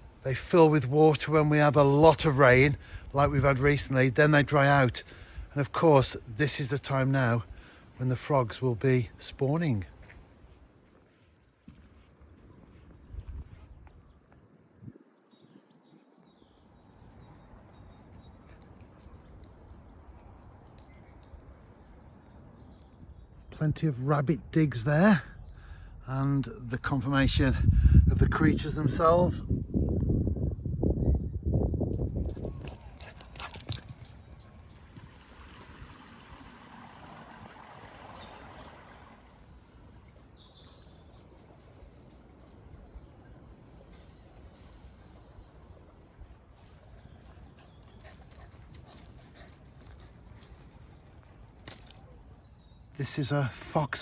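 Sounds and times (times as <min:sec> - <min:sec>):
outdoor background noise: 0:00.0 - 0:54.0
small birds chirping: 0:29.2 - 0:34.8, 0:39.6 - 0:42.0, 0:46.1 - 0:54.0.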